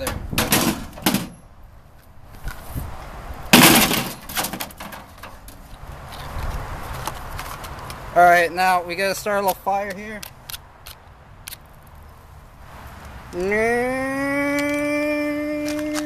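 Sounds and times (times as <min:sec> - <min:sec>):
metal parts clanking: 0:00.0 - 0:01.4, 0:03.6 - 0:05.4
loud bang: 0:03.5 - 0:04.6.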